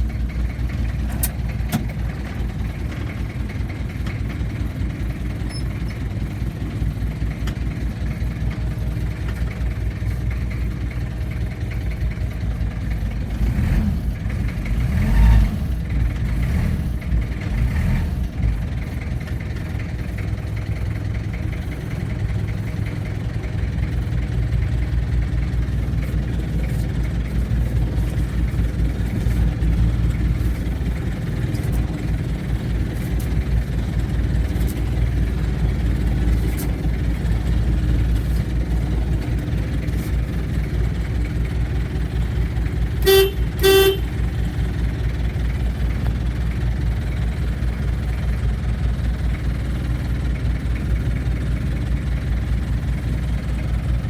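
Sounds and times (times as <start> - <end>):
diesel engine idling: 0.0 - 54.0
short vehicle horn beeps: 43.0 - 44.3.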